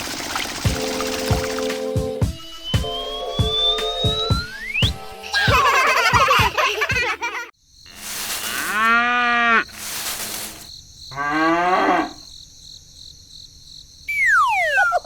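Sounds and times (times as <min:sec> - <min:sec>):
cow mooing: 0:07.9 - 0:09.7, 0:11.1 - 0:12.3
hiss bursts: 0:09.7 - 0:10.7.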